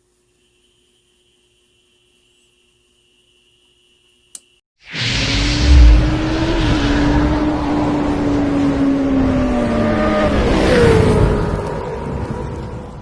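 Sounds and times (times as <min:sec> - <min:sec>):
deep low rumble: 0:05.4 - 0:07.5.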